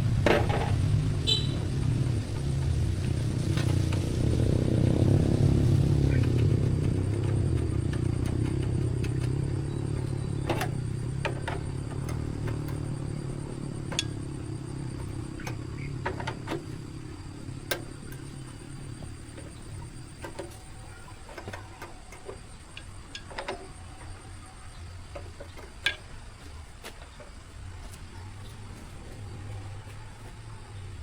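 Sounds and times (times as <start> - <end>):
engine rumble: 0.0 - 31.0
sharp metallic clicks and knocks: 6.2 - 28.6.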